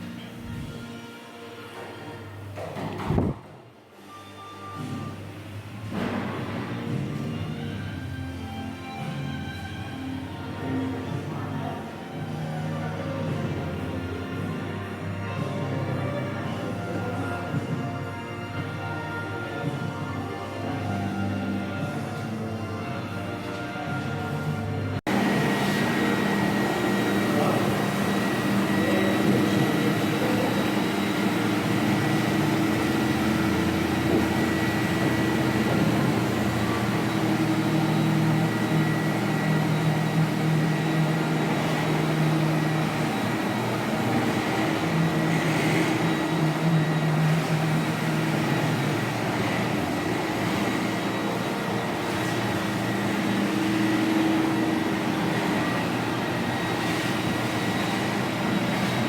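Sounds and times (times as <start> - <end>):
floor cleaning machine hum: 0.0 - 59.0
thin high whine: 25.1 - 59.0.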